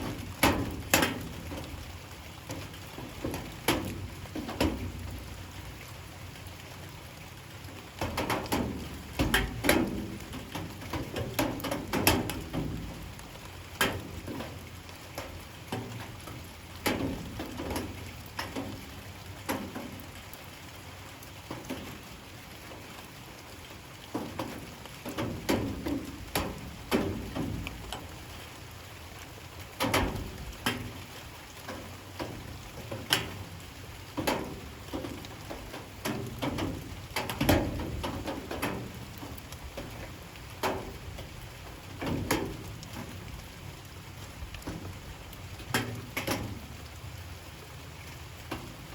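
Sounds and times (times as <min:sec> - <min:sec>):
light rain patter: 0:00.0 - 0:48.9
drips tapping on hard surface: 0:02.5 - 0:05.1, 0:08.0 - 0:12.9.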